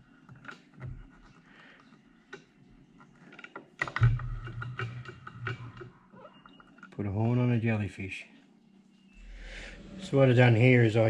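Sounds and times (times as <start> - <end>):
steady low hum: 7.0 - 11.0.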